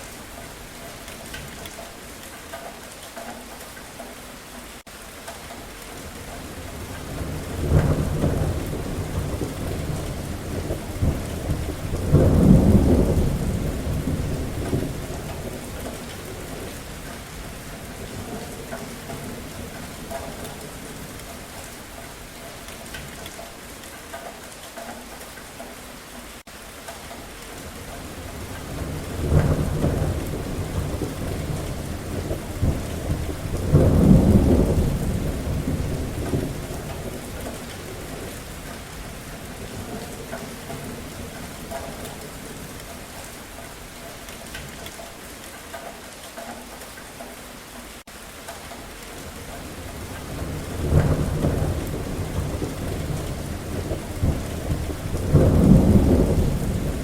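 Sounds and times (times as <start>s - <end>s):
steady rain falling: 0.0s - 57.0s
thunder rumbling: 6.4s - 21.6s, 27.6s - 43.9s, 49.2s - 57.0s.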